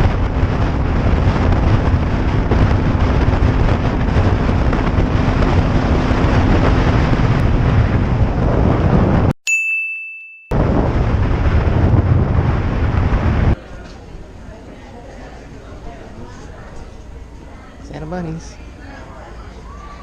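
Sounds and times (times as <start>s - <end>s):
motorcycle engine: 0.0s - 9.2s
wind buffeting microphone: 0.0s - 9.3s, 10.5s - 13.6s.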